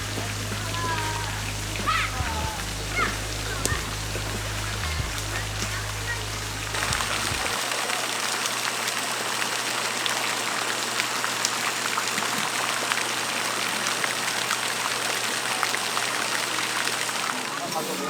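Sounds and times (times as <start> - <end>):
water splashing with drips: 0.0 - 18.0.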